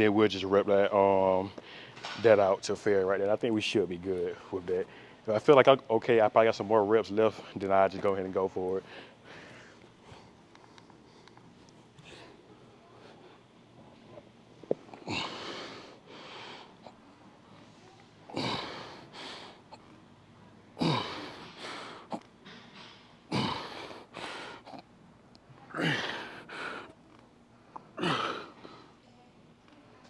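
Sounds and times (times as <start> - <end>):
man grunting and exhaling hard: 18.3 - 19.0, 20.8 - 21.5, 23.3 - 24.0, 25.7 - 26.5, 28.0 - 28.5.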